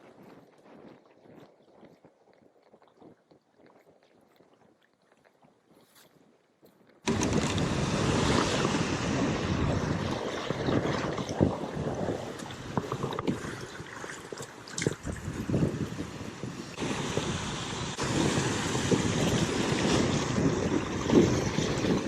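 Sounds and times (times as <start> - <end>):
choppy water: 0.0 - 6.4, 7.0 - 22.0
wind buffeting microphone: 7.1 - 22.0.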